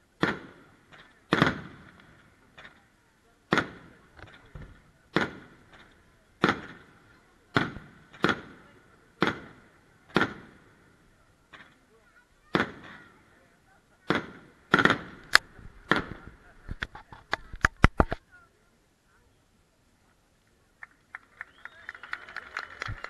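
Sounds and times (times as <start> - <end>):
firework shells bursting: 3.5 - 8.6.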